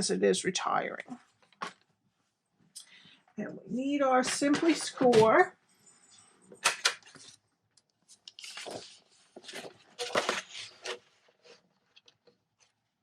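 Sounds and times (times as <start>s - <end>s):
paper rustling and crinkling: 8.0s - 12.8s.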